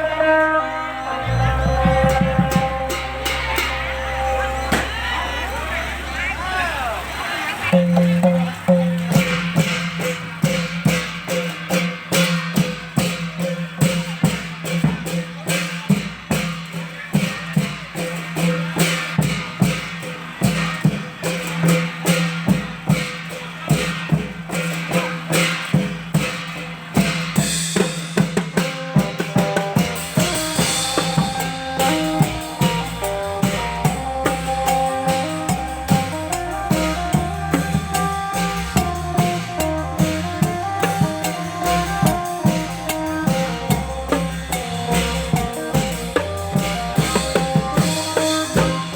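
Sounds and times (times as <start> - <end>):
plucked string melody: 0.0 - 5.4
long drum beat: 1.2 - 6.6, 7.7 - 48.9.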